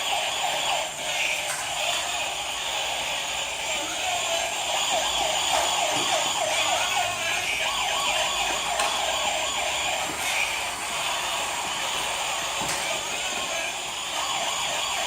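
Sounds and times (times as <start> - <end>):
police siren wailing: 0.0 - 15.0.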